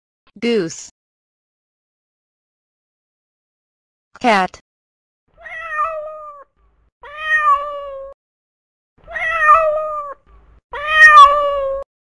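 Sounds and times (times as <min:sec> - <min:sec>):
cat meowing: 0:05.4 - 0:08.2, 0:09.0 - 0:11.9.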